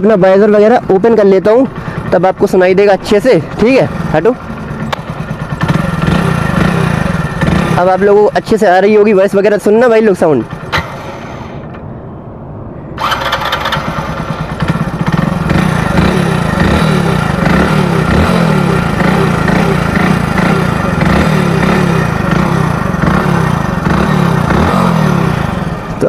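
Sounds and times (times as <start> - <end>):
motorcycle engine rasping: 3.5 - 8.1, 10.4 - 12.0, 13.0 - 26.0.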